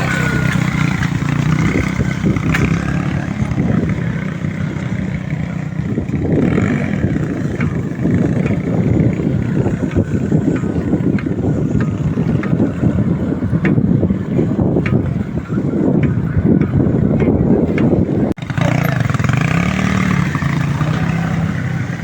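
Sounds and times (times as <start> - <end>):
small motorcycle engine running: 0.0 - 13.5, 18.4 - 22.0.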